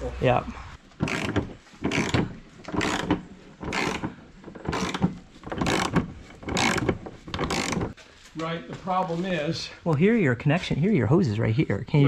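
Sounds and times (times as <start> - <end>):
ratchet wrench clicking: 1.0 - 4.1, 4.7 - 8.0.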